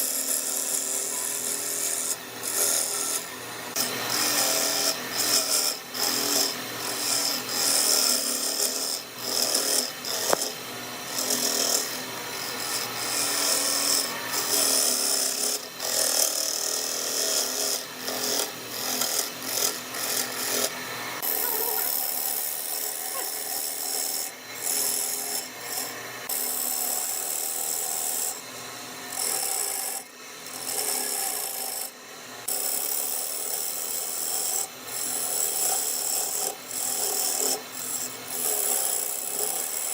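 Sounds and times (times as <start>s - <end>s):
tool scraping spinning wood: 0.0s - 28.4s.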